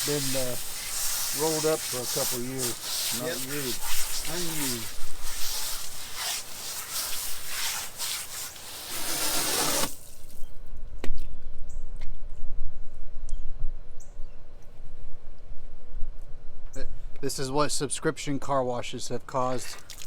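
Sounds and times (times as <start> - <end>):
water splashing and dripping: 0.0 - 10.5, 19.6 - 20.0
wet cloth being wrung out: 0.0 - 10.5, 19.6 - 20.0.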